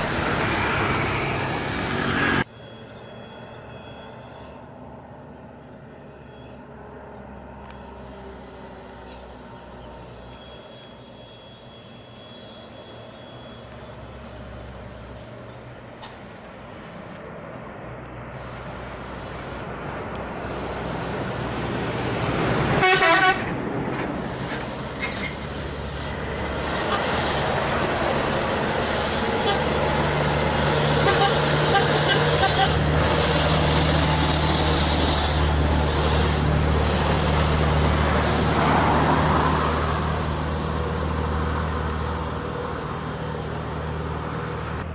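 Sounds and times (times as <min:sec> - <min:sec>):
truck diesel engine under load: 0:00.0 - 0:02.5, 0:17.4 - 0:44.9
truck horn toot: 0:02.5 - 0:04.4, 0:22.8 - 0:23.5, 0:26.8 - 0:27.2, 0:29.1 - 0:29.9, 0:30.9 - 0:32.9.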